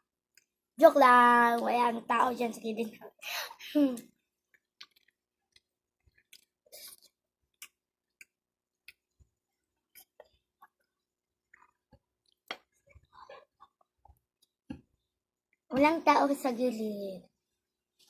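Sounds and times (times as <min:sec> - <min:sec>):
people chewing: 0:04.0 - 0:14.7.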